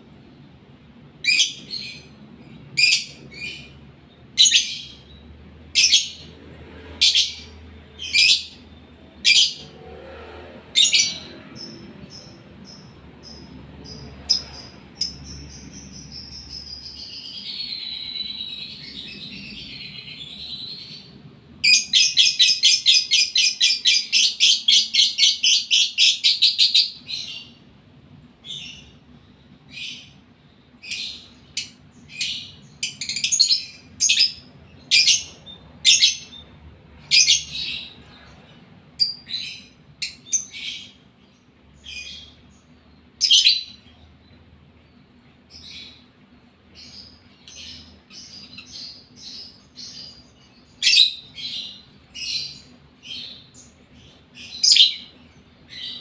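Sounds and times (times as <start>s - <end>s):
lovebird chirping and warbling: 1.2s - 2.2s, 2.8s - 3.8s, 4.4s - 5.2s, 5.8s - 6.3s, 7.0s - 9.7s, 10.8s - 27.6s, 30.8s - 36.5s, 37.1s - 38.0s, 43.2s - 43.9s, 46.8s - 55.1s.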